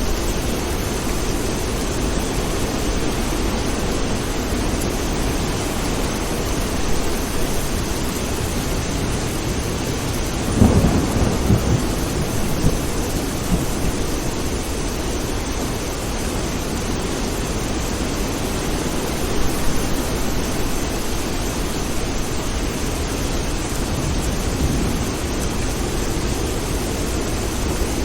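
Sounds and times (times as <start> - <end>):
heavy rain: 0.0 - 28.0
low thunder rumble: 8.4 - 15.7, 23.6 - 27.9.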